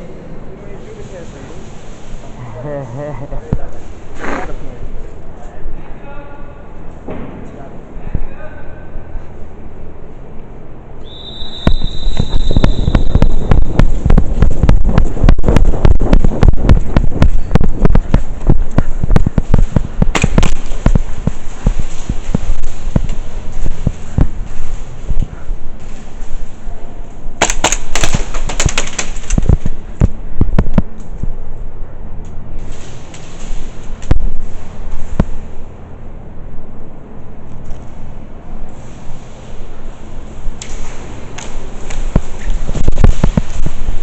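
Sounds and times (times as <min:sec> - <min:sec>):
thin high whine: 0:11.0 - 0:26.9
airsoft guns firing: 0:11.7 - 0:23.2, 0:27.4 - 0:29.8.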